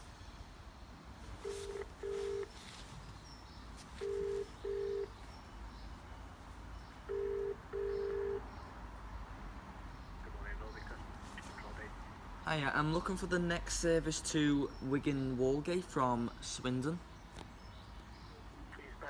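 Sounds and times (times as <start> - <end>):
telephone double ring: 7.1 - 8.4.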